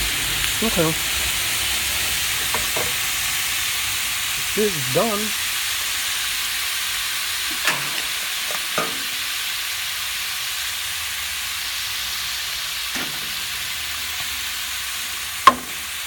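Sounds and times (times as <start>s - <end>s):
beans sizzling in hot oil: 0.0s - 16.0s
utensil knocking against pan: 7.7s - 9.2s, 15.4s - 15.8s.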